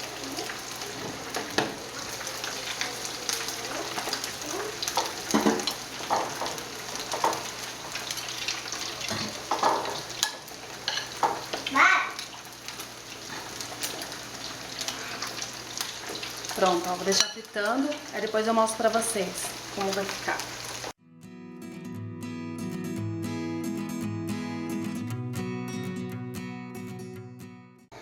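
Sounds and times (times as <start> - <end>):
meatballs sizzling in hot oil: 0.0 - 21.0.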